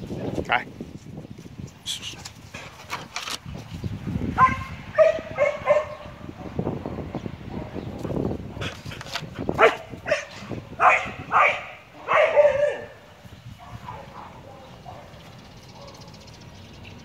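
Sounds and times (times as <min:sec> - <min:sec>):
dogs barking: 0:04.4 - 0:06.6, 0:09.5 - 0:16.4.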